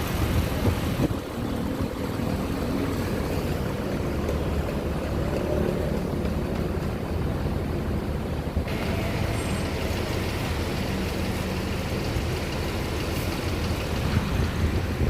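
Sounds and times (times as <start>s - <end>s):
large vehicle engines rumbling: 0.0s - 15.0s
hiss: 8.7s - 14.6s.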